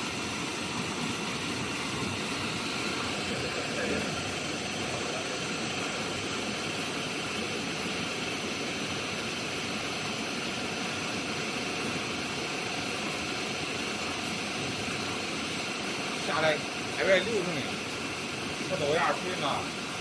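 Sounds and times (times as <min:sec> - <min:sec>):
faint steady hum: 0:00.0 - 0:20.0
washing machine rushing: 0:00.0 - 0:20.0.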